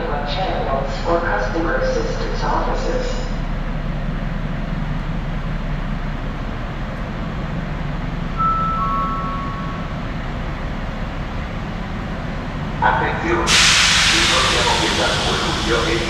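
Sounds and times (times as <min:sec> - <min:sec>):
train rumbling in tunnel: 0:00.0 - 0:16.0
two-note steady tone: 0:08.3 - 0:10.6.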